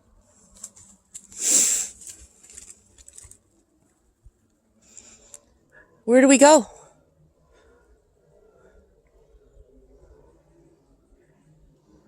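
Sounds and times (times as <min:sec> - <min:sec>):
rustling through undergrowth: 0:00.3 - 0:03.6
twigs crackling and snapping: 0:00.5 - 0:03.4.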